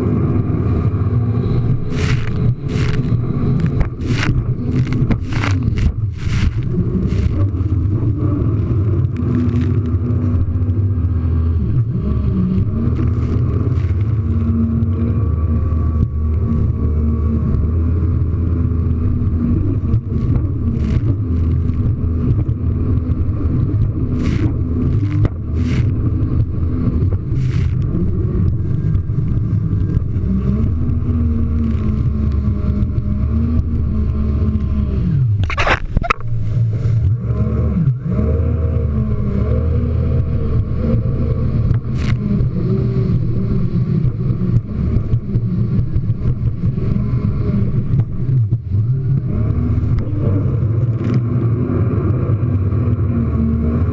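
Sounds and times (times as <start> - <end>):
hull slapping water: 0.0 - 53.9
jet ski engine: 0.0 - 53.9.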